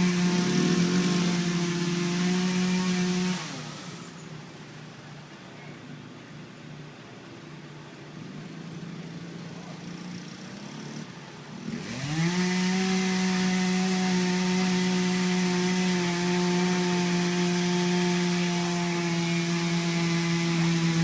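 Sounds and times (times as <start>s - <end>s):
dirtbike engine revving: 0.0s - 4.2s, 9.8s - 21.0s.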